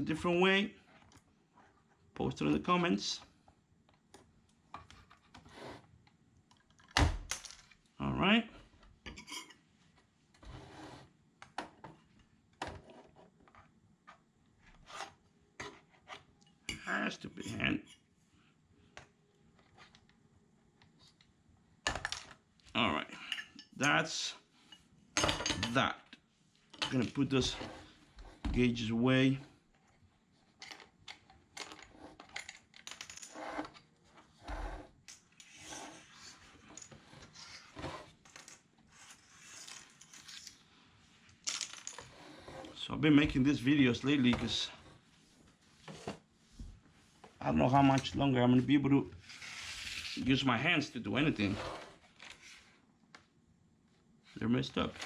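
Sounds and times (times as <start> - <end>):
small parts and tools clinking: 30.6 - 33.8, 39.5 - 40.6, 41.3 - 42.2.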